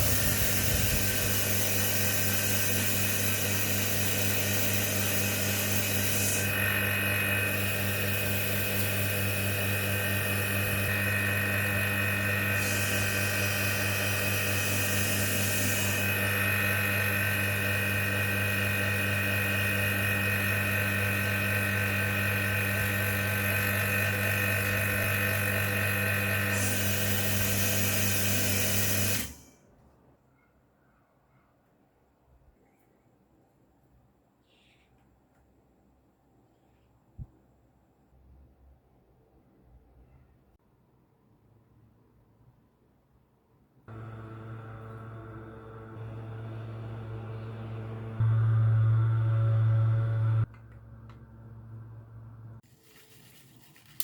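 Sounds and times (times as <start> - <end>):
vacuum pump humming: 0.0 - 29.4, 43.9 - 52.6.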